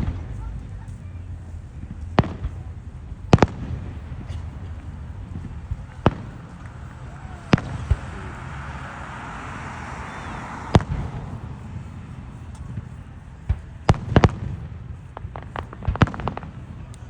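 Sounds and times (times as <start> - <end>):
fireworks bangs: 0.0 - 17.0
steady low rumble: 0.0 - 17.0.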